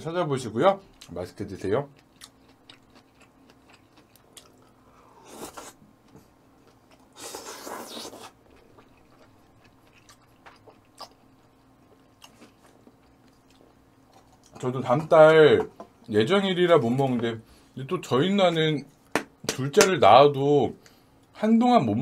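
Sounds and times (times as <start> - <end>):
person chewing: 2.0 - 14.6.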